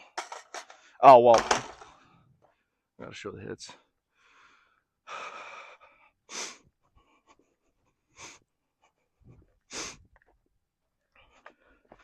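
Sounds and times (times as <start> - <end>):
person breathing hard: 4.1 - 10.1.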